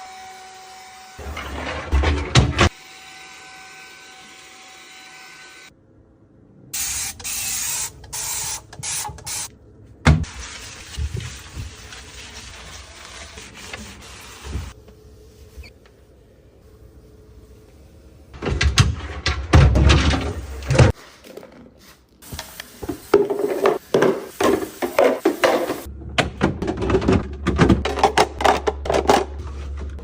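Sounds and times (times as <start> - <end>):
containers clattering in a fridge: 23.2 - 30.0.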